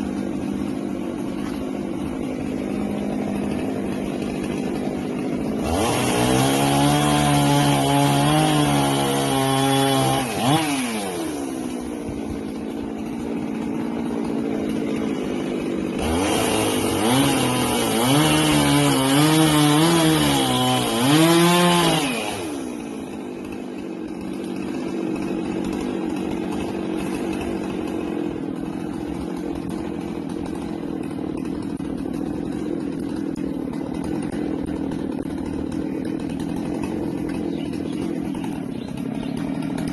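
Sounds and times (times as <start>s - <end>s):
chainsaw cutting wood: 0.0s - 39.9s
chainsaw idling: 0.0s - 39.9s.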